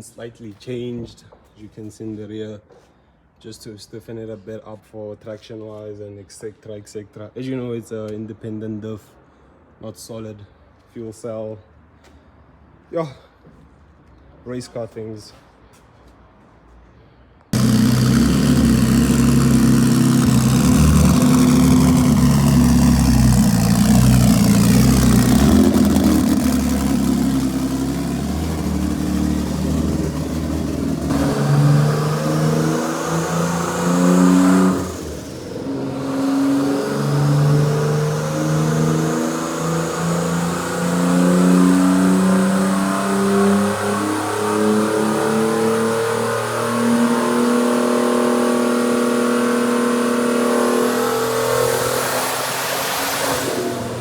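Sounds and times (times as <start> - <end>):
turbo whine: 17.6 - 41.0
car engine revving: 17.6 - 54.0.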